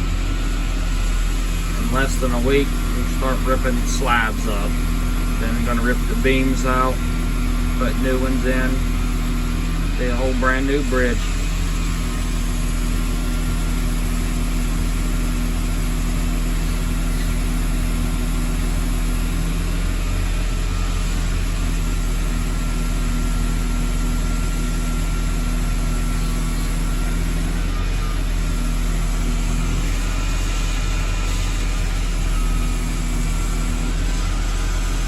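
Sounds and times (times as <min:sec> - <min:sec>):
diesel concrete saw running: 0:00.0 - 0:35.0.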